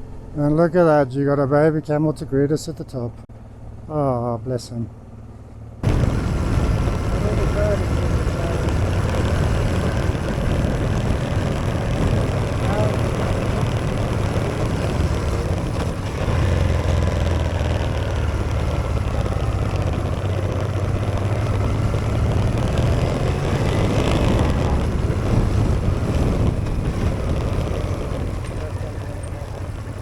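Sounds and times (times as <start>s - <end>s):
motorcycle engine rumbling: 5.8s - 30.0s.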